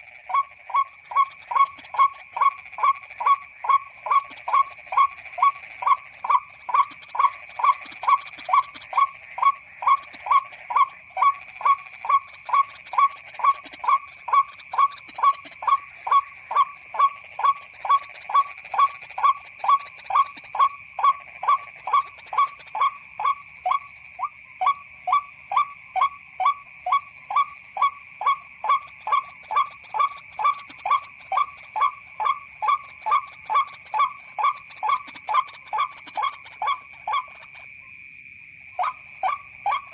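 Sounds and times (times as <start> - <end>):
bird call through speaker: 26.9 - 37.6.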